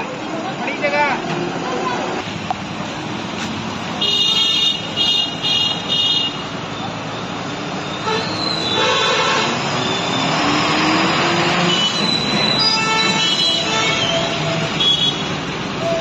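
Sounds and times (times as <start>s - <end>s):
traffic noise: 0.0s - 16.0s
vehicle horn honks: 8.0s - 9.5s, 12.6s - 15.3s
engine climbing in pitch: 9.4s - 12.8s.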